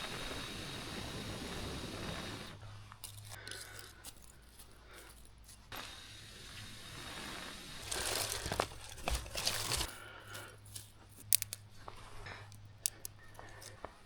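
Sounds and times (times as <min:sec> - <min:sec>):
crinkling and rustling: 0:02.8 - 0:05.7, 0:07.8 - 0:13.9
sharp snaps: 0:11.2 - 0:11.9, 0:12.5 - 0:14.0.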